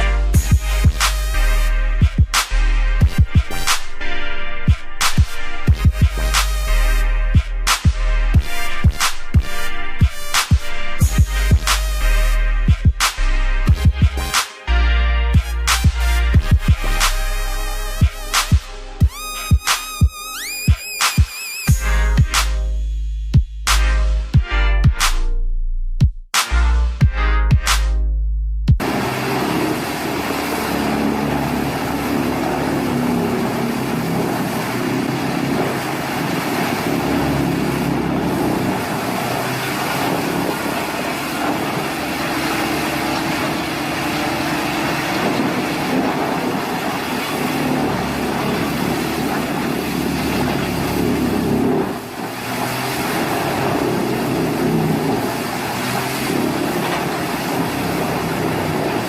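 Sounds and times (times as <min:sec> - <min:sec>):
heavy machinery engine rumbling: 0:28.8 - 0:59.0.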